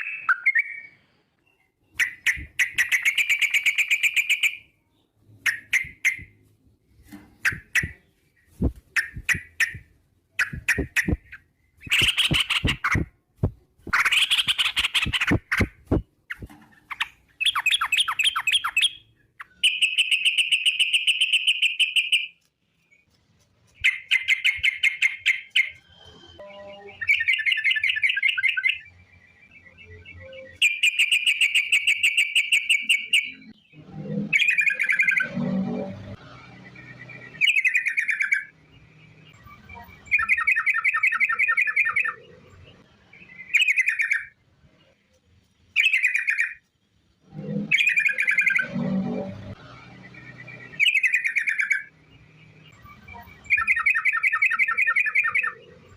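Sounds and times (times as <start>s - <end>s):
bird chattering song: 0.0s - 6.4s, 7.4s - 13.1s, 13.9s - 22.4s, 23.7s - 25.8s, 26.5s - 35.3s, 36.6s - 45.0s, 45.7s - 46.8s, 50.0s - 55.9s.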